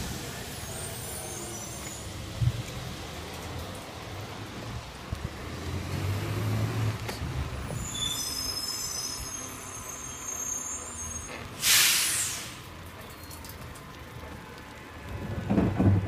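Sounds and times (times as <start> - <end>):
high-pitched squeal: 0.4 - 2.2, 7.7 - 12.6.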